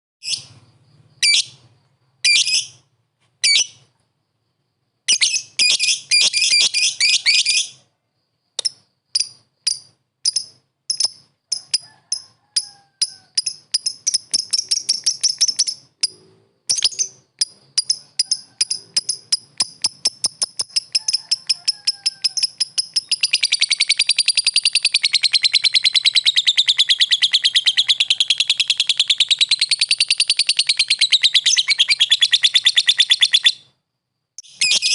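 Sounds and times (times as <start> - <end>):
lovebird chirping: 0.2 - 3.9, 5.1 - 7.9, 8.5 - 12.3, 13.0 - 33.8, 34.4 - 34.9.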